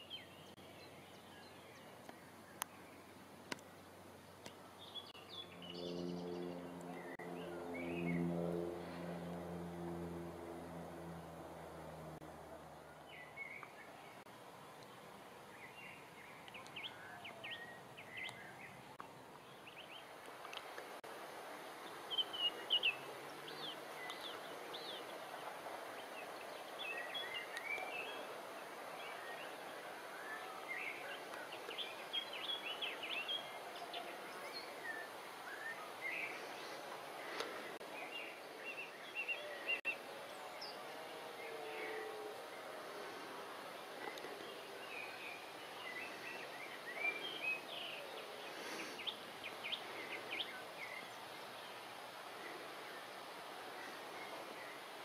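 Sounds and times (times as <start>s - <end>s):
faint outdoor hiss: 0.0s - 55.0s
small birds chirping: 12.1s - 21.0s, 21.7s - 55.0s.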